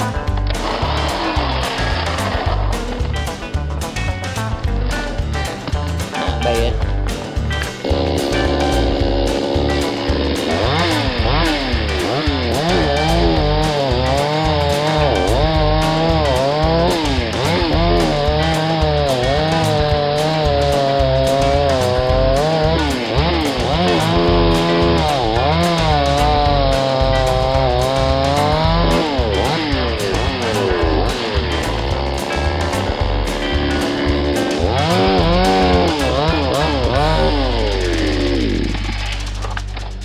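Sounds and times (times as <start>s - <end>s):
guitar music: 0.0s - 40.0s
chainsaw cutting wood: 8.9s - 37.4s.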